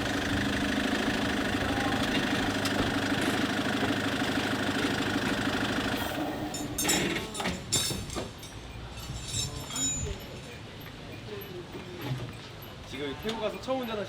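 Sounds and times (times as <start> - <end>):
vehicle engine idling: 0.0 - 6.3.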